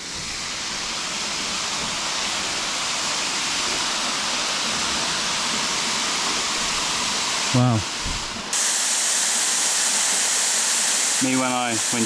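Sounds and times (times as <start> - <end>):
waterfall rushing: 8.6 - 12.0.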